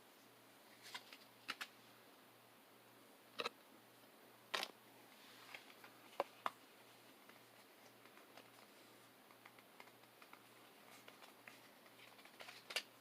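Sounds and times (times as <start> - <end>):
faint steady hum: 0.0 - 13.0
card packaging clicks and taps: 11.0 - 12.9.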